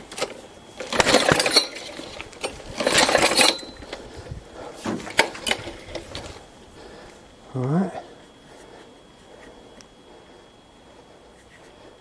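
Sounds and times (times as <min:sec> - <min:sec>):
lawn mower recoil starter pulls: 0:00.0 - 0:06.5
engine turning over: 0:00.0 - 0:06.6.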